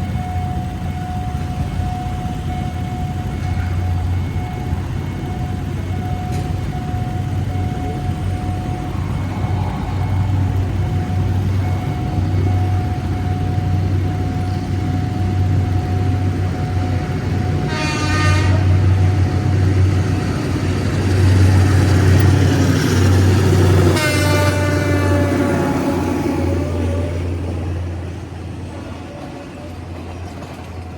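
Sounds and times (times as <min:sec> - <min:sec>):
low engine rumble: 0:00.0 - 0:30.9
train horn blast: 0:17.6 - 0:19.4, 0:23.8 - 0:26.8.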